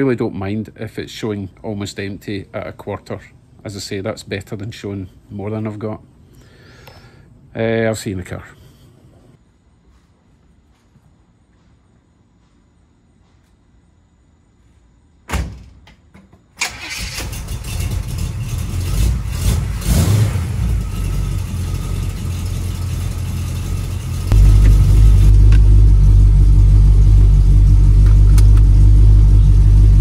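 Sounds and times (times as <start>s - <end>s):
engine starter cranking: 16.6s - 19.2s
car engine running and revving: 17.7s - 30.0s.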